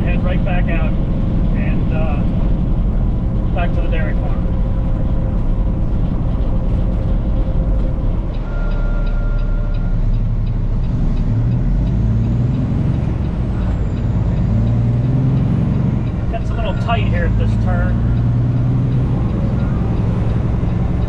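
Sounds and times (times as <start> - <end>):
truck diesel engine running: 0.0 - 21.0
short beep: 8.4 - 10.1.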